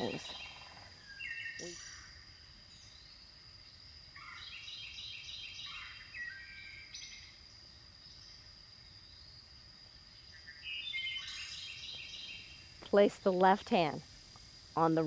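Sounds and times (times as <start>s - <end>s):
birds chirping: 0.0s - 2.1s, 14.8s - 15.0s.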